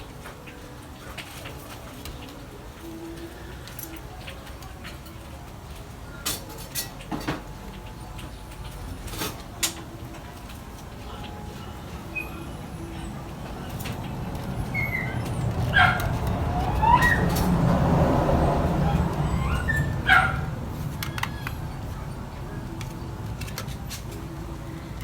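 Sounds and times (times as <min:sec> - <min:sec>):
dog barking: 0:15.7 - 0:17.3, 0:19.4 - 0:20.6.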